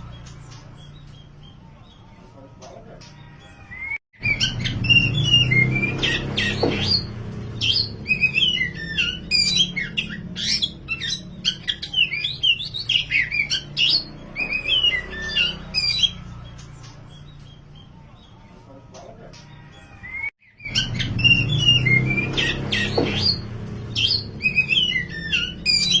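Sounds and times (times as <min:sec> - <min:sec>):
magpie-robin singing whistled phrases: 0:03.7 - 0:16.2, 0:20.0 - 0:26.0.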